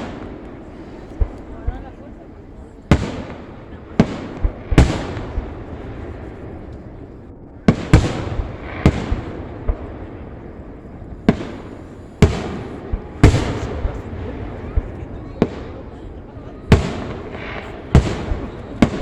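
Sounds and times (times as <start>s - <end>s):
fireworks bursting with crackle: 0.0s - 19.0s.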